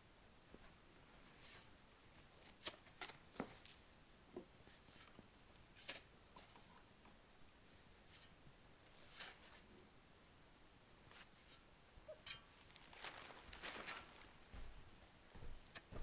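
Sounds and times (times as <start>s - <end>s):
faint clicks and rustles: 11.1s - 16.0s.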